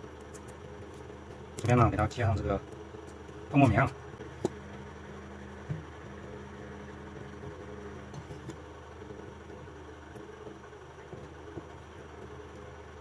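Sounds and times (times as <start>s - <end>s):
low electrical fan hum: 0.0s - 13.0s.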